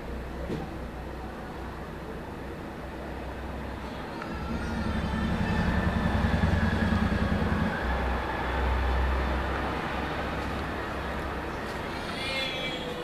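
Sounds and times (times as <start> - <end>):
low vehicle rumble: 0.0 - 13.0
faint high squealing tones: 3.7 - 8.2, 11.5 - 13.0.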